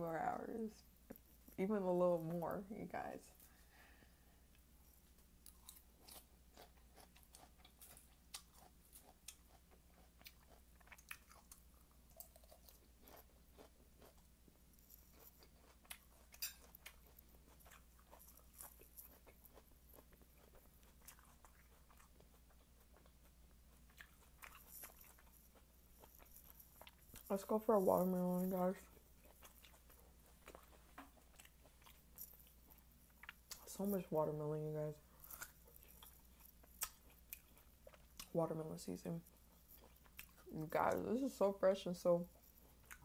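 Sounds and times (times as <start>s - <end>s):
chewing crisp lettuce: 4.8s - 43.0s.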